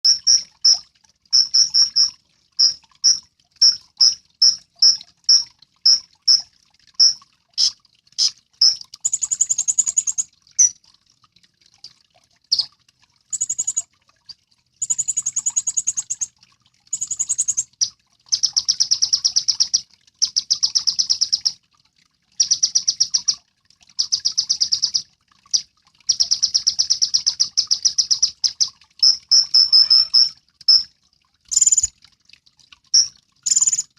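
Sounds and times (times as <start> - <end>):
bird chirping and trilling: 0.0 - 0.8, 1.4 - 6.4, 7.0 - 10.8, 13.3 - 13.8, 14.8 - 16.3, 16.9 - 17.7, 31.5 - 31.9, 33.0 - 33.9.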